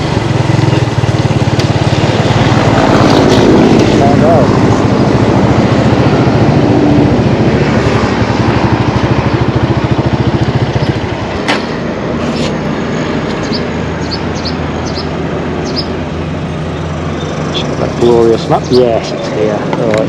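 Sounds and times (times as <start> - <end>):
motorbike engine running: 0.0 - 16.0.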